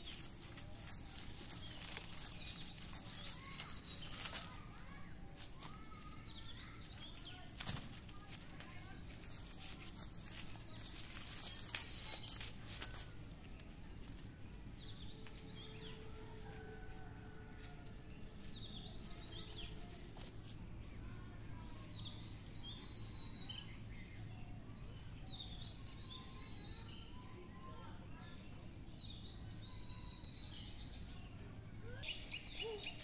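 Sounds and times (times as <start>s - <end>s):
bird chirping: 0.0s - 4.7s, 10.2s - 16.1s, 21.8s - 27.3s
low outdoor background: 0.0s - 33.0s.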